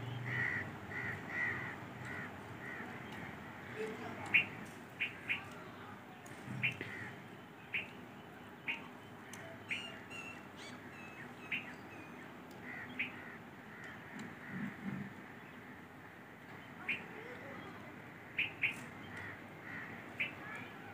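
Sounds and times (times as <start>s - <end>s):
birds chirping: 0.0s - 20.9s.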